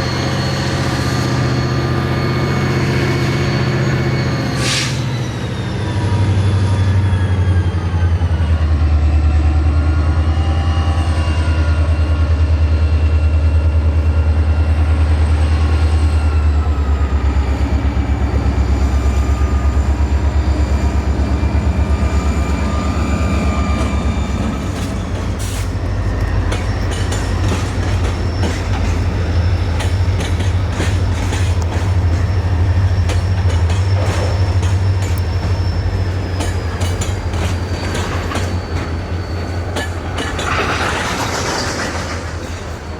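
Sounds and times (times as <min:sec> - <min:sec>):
train rumbling: 0:00.0 - 0:42.9
wheels squealing: 0:10.7 - 0:42.9
wheels clicking over rail joints: 0:23.7 - 0:42.9.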